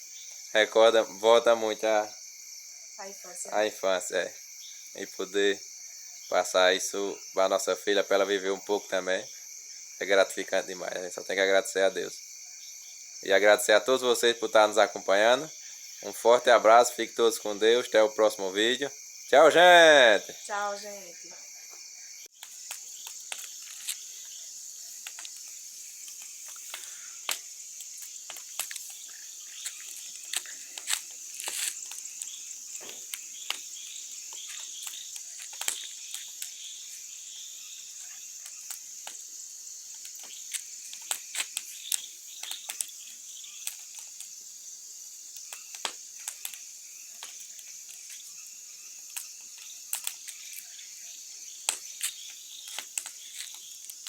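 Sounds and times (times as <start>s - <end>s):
crickets chirping: 0.0s - 54.0s
bonfire crackling and popping: 22.4s - 24.1s, 24.9s - 37.1s, 38.0s - 39.3s, 39.9s - 44.4s, 45.2s - 48.2s, 49.0s - 50.6s, 51.6s - 54.0s.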